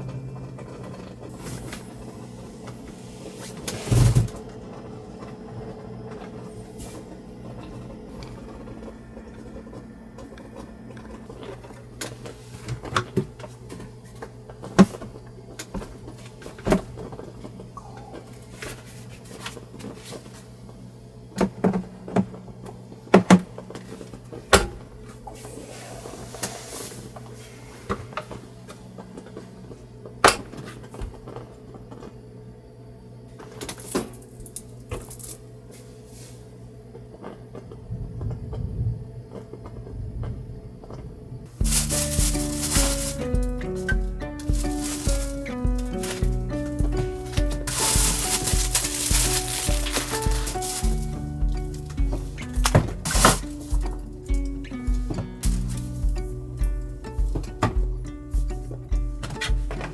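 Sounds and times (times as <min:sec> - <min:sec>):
steady low hum: 0:00.0 - 0:30.2, 0:37.8 - 0:59.9
knocks and clatter of objects handled: 0:41.6 - 0:59.9.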